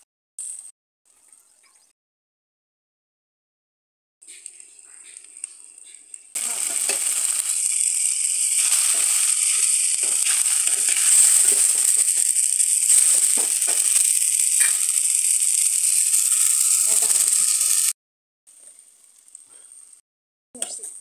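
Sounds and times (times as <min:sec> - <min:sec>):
onions sizzling in hot oil: 0:04.3 - 0:20.0, 0:20.6 - 0:21.0
spatula scraping a pan: 0:06.5 - 0:15.0.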